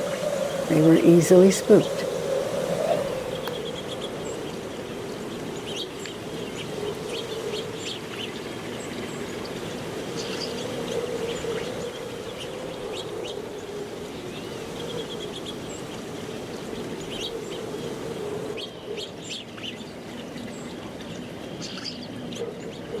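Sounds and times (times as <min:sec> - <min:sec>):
low background noise: 0:00.0 - 0:22.9
songbirds chirping: 0:00.0 - 0:23.0.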